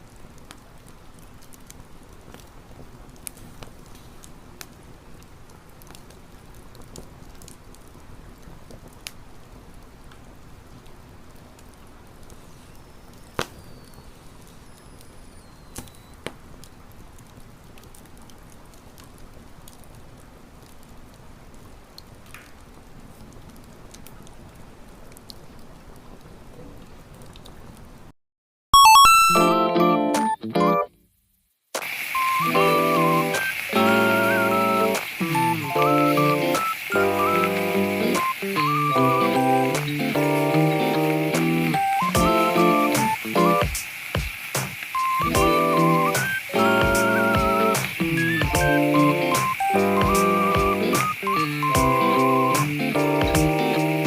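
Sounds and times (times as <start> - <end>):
campfire flames hissing: 0.0 - 28.1, 31.8 - 54.0
fire crackles and pops: 0.0 - 28.1, 31.2 - 54.0.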